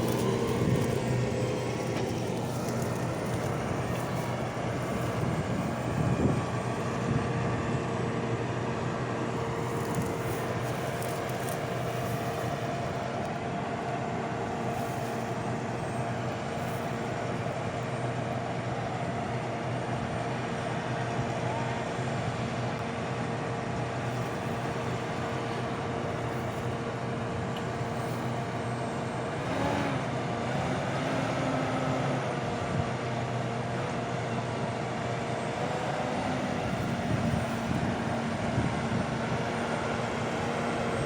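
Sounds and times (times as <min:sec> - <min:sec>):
machine whine: 0:00.0 - 0:19.4, 0:23.8 - 0:41.0
diesel engine running: 0:00.0 - 0:41.0.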